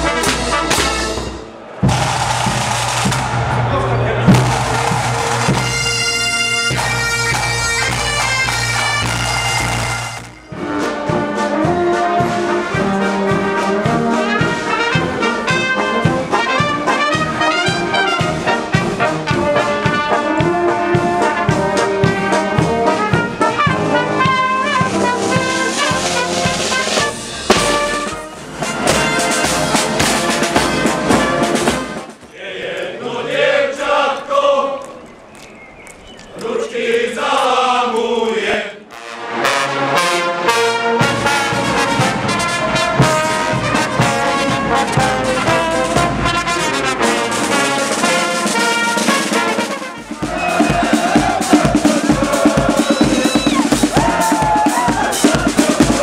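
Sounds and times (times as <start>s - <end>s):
brass band held chord: 0.0s - 32.2s, 38.9s - 56.0s
brass march melody: 0.0s - 32.2s, 38.8s - 56.0s
bass drum beat: 1.8s - 9.9s, 50.2s - 56.0s.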